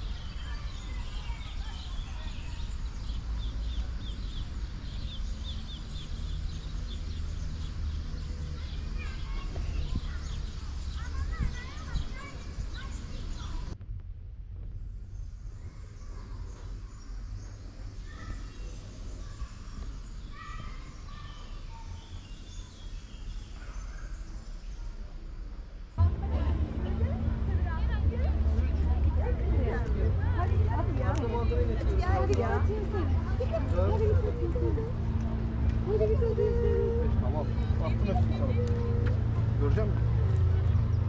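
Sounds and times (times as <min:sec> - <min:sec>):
small birds chirping: 0:00.0 - 0:13.8, 0:15.0 - 0:26.2
low outdoor rumble: 0:00.0 - 0:41.0.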